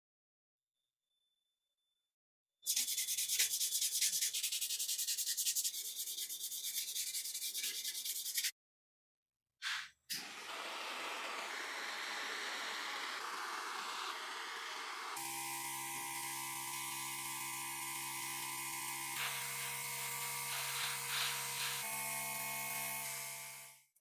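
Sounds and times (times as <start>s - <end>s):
sanding strokes on metal: 2.7s - 8.5s, 19.2s - 21.9s.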